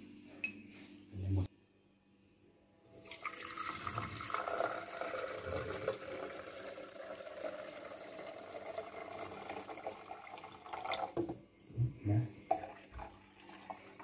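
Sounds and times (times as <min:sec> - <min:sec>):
water running into a tank: 0:03.0 - 0:11.4, 0:12.4 - 0:14.0.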